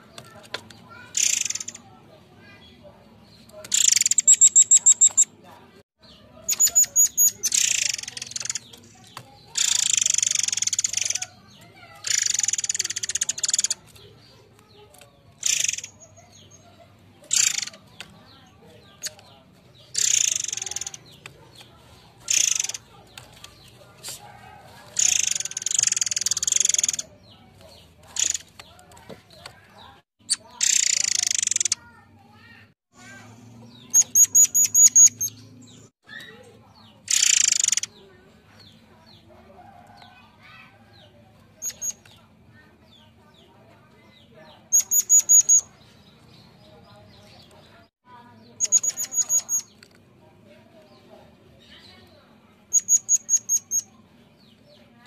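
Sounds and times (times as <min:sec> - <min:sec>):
small bird chirps: 0:00.0 - 0:55.0
bird harsh rasping calls: 0:00.3 - 0:02.8, 0:03.6 - 0:05.4, 0:06.0 - 0:38.0, 0:44.6 - 0:46.4, 0:48.5 - 0:49.8, 0:52.7 - 0:54.0.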